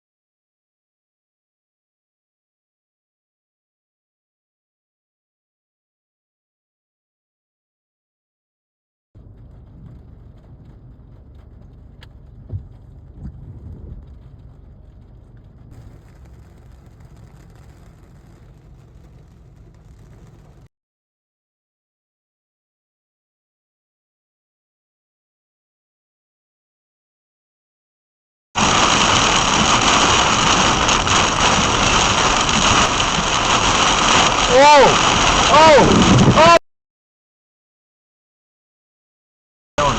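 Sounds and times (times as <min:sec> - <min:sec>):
car engine and road rumble: 0:09.2 - 0:20.7, 0:28.6 - 0:36.6
rain: 0:09.2 - 0:20.7, 0:28.6 - 0:36.6
dull thumps: 0:12.4 - 0:14.0
wind rushing: 0:28.6 - 0:36.6.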